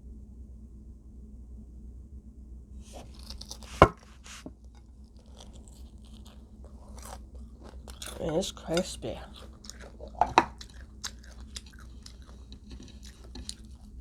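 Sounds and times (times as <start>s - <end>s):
tableware scraping and crunching: 2.9s - 14.0s.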